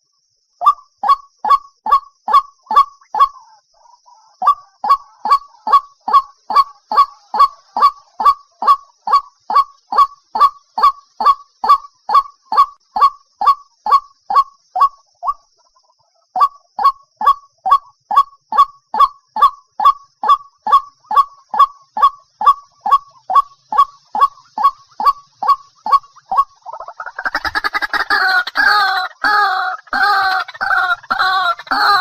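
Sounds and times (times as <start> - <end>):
waterhen honking calls: 4.4 - 15.4, 18.5 - 32.0.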